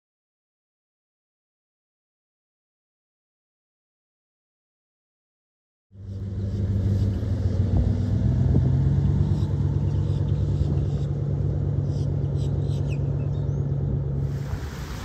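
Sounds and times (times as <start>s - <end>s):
vehicle engine humming: 5.9s - 15.0s.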